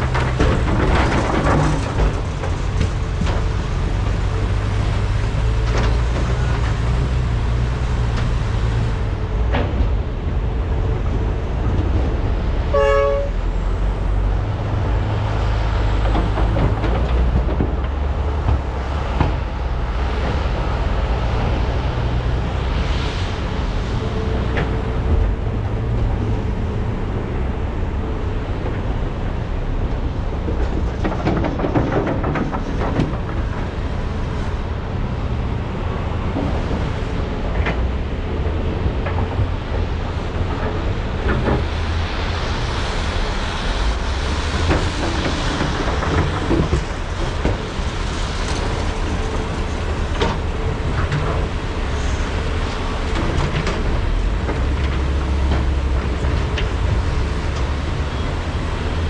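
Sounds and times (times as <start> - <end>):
excavator diesel engines: 0.0 - 59.0
horn toot: 12.7 - 13.4.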